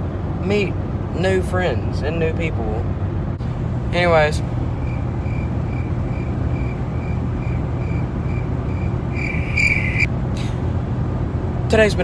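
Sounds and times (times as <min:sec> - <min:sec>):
car road and engine rumble: 0:00.0 - 0:12.0
high-pitched beeping: 0:06.6 - 0:10.1.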